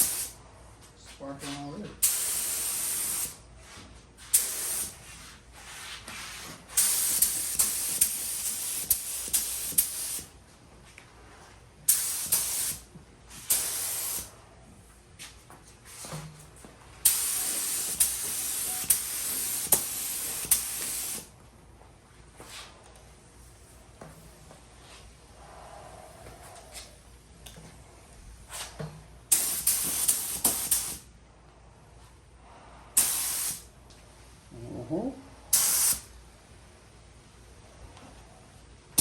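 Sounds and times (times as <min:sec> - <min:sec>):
paint spray gun hissing: 0:00.0 - 0:00.3, 0:02.0 - 0:03.4, 0:04.3 - 0:04.9, 0:06.8 - 0:10.3, 0:11.9 - 0:12.8, 0:13.5 - 0:14.3, 0:17.0 - 0:21.3, 0:29.3 - 0:31.0, 0:33.0 - 0:33.6, 0:35.6 - 0:36.1.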